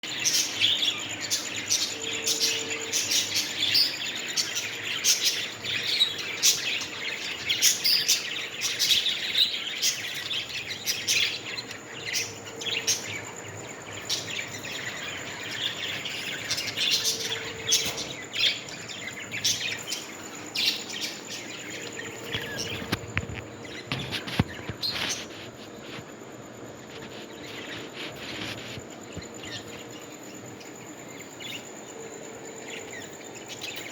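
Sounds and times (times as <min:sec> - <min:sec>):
parrots chirping and chattering: 0:00.0 - 0:26.0.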